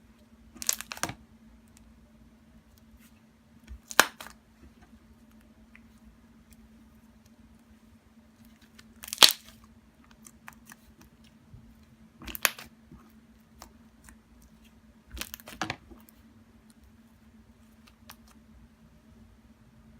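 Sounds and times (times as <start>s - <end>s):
low steady hum: 0.0s - 19.9s
sticky slime crackling: 0.5s - 1.2s, 3.6s - 4.4s, 8.5s - 11.3s, 12.2s - 16.2s.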